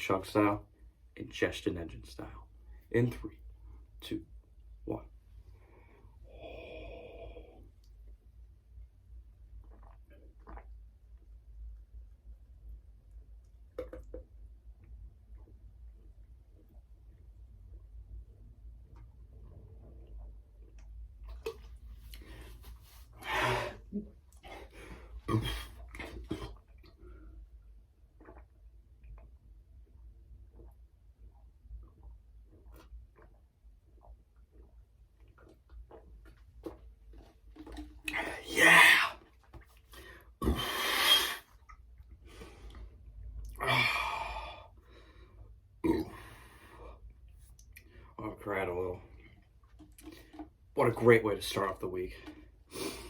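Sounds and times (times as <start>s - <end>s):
person breathing hard and gasping: 23.2s - 25.8s, 43.6s - 45.4s
man gasping sighs: 43.6s - 44.7s.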